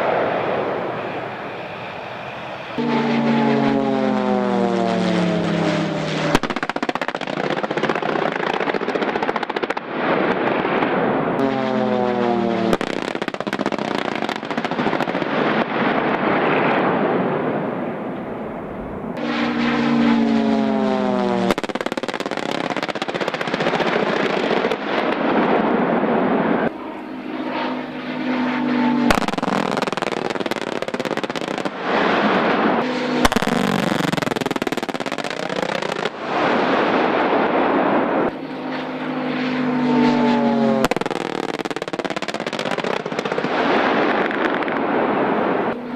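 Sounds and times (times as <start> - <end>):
military jets passing: 0.0 - 45.9
sharp cracks: 2.8 - 17.0, 19.2 - 25.8, 28.7 - 38.4, 39.8 - 45.8
crackling gunfire: 2.8 - 17.2, 19.2 - 26.2, 28.8 - 38.0, 39.8 - 45.6.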